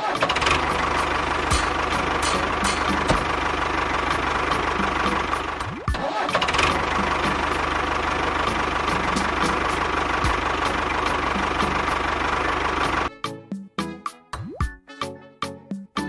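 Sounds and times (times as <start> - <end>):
small engine running: 0.0 - 13.1
music with regular beat: 1.5 - 3.3.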